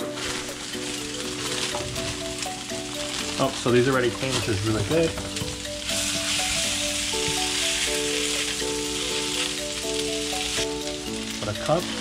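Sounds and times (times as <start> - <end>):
food tossed with tongs: 0.0 - 11.4
background music: 0.0 - 12.0
stir-fry sizzling in a pan: 0.0 - 12.0.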